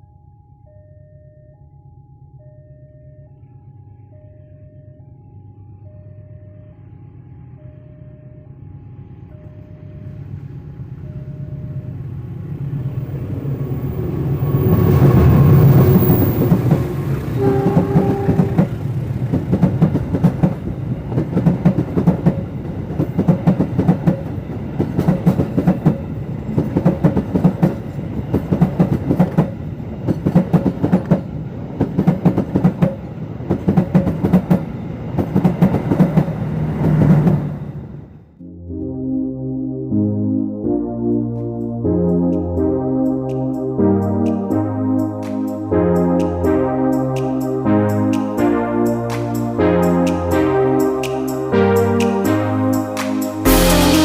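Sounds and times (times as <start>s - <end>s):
train passing: 5.8s - 38.4s, 41.4s - 54.0s
train horn blast: 14.5s - 18.9s.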